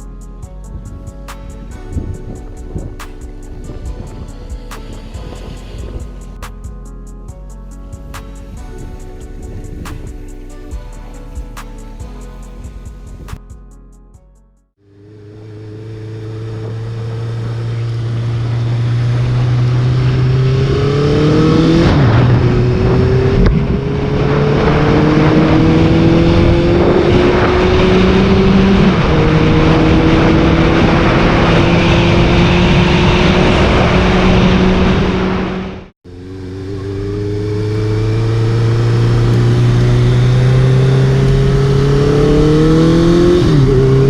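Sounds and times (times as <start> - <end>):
wind noise: 0.0 - 7.0, 16.6 - 35.9
motorcycle engine accelerating: 0.0 - 7.1, 14.8 - 44.0.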